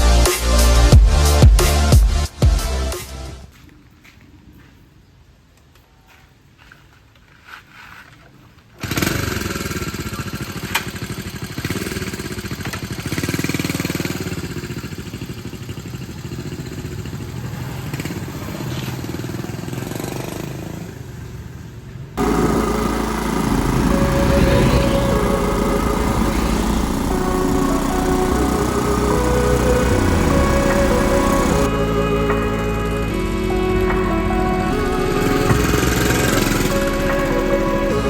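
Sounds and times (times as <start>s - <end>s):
motorcycle engine running: 9.7s - 21.6s, 22.2s - 38.0s.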